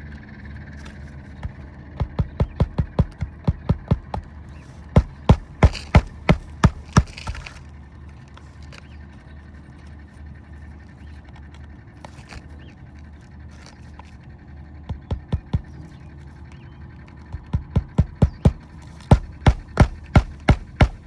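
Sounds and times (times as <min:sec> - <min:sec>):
hammer driving nails into shingles: 0:01.4 - 0:04.3, 0:04.9 - 0:07.6, 0:14.9 - 0:15.8, 0:17.4 - 0:21.0.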